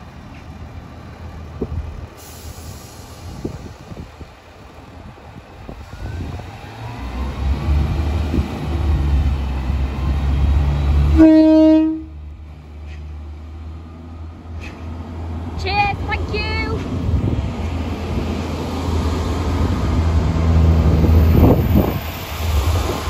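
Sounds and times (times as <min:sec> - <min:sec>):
train rumbling: 0:00.0 - 0:23.0
train horn blast: 0:11.0 - 0:12.2.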